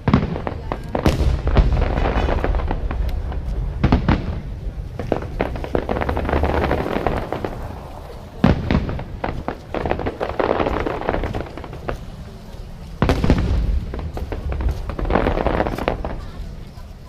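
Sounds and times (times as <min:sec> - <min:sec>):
fireworks booming: 0:00.0 - 0:17.0
fireworks crackling: 0:00.0 - 0:17.0
low rumble: 0:00.7 - 0:09.7.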